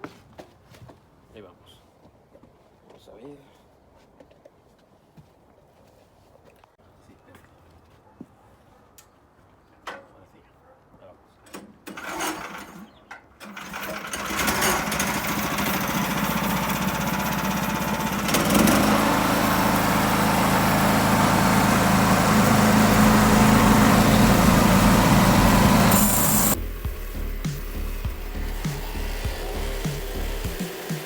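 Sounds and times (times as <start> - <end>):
sawmill engine and saw running: 13.4 - 31.0.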